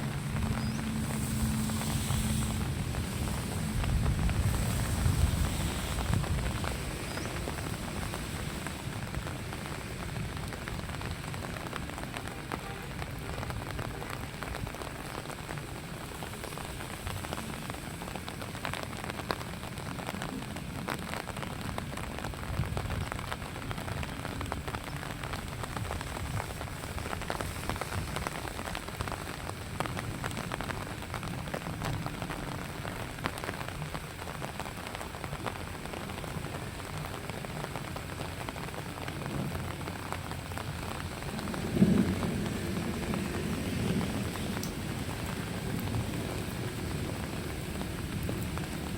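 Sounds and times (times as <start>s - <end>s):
steady low rumble: 0.0s - 11.9s, 35.7s - 48.9s
light rain pattering: 0.0s - 48.9s.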